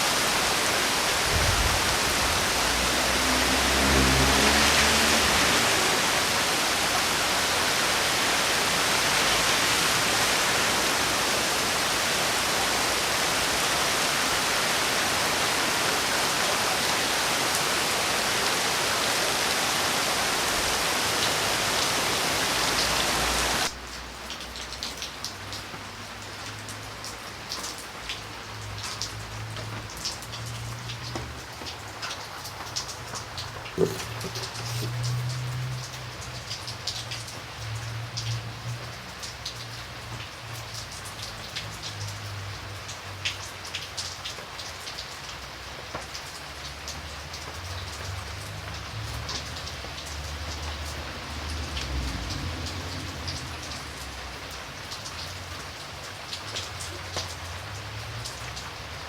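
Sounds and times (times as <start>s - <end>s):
dense rain hiss: 0.0s - 59.0s
raindrops pattering: 0.0s - 59.0s.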